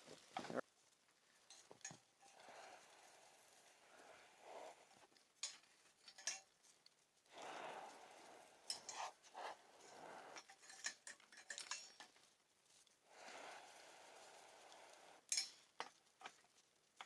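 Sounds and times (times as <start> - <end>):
metal utensils clinking on pan: 5.4 - 6.7, 8.6 - 12.3, 15.3 - 16.4.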